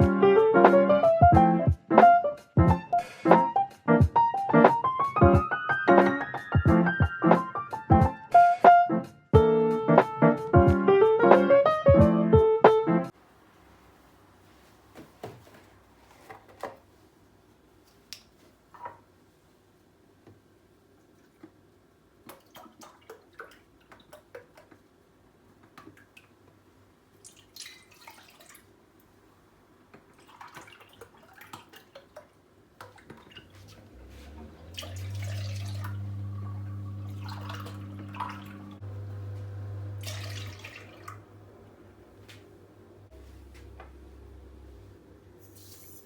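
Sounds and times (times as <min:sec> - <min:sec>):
water splashing: 0:22.2 - 0:24.7, 0:27.2 - 0:28.7, 0:30.1 - 0:41.6
low appliance hum: 0:32.4 - 0:46.0.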